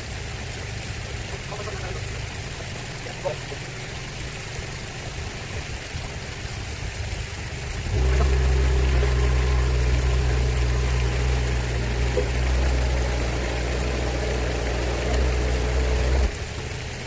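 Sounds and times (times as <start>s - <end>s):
construction machine engine: 7.6s - 17.0s.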